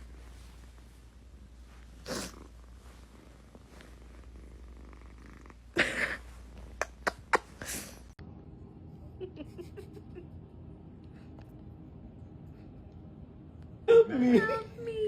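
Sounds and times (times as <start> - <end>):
cat purring: 0.0 - 7.6.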